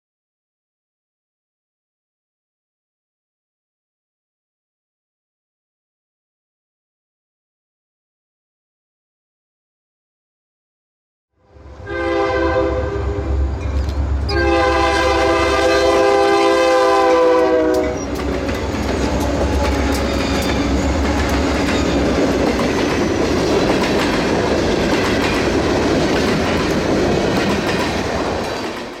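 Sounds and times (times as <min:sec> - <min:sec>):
locomotive rumble: 0:11.5 - 0:29.0
rail cars clattering: 0:11.6 - 0:29.0
train air horn blasts: 0:11.8 - 0:13.4, 0:14.3 - 0:18.4.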